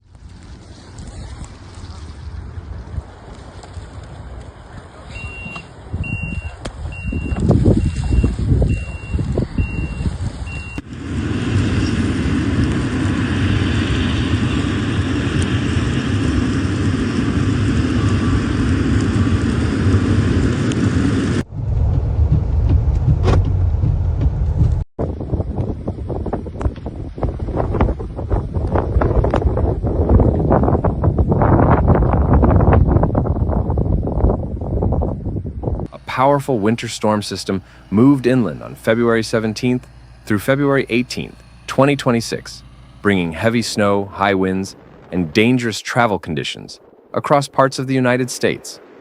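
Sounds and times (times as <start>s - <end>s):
low rumbling noise: 0.0s - 49.0s
reversing alarm beeping: 5.1s - 10.9s
loud rushing noise: 7.5s - 25.8s, 35.9s - 49.0s.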